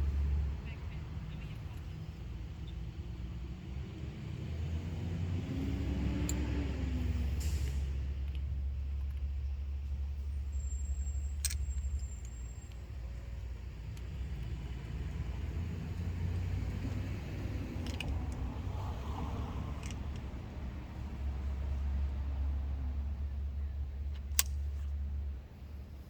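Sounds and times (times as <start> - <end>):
light metallic clicks: 1.3 - 2.8, 6.0 - 15.1, 15.9 - 21.8, 23.5 - 25.2.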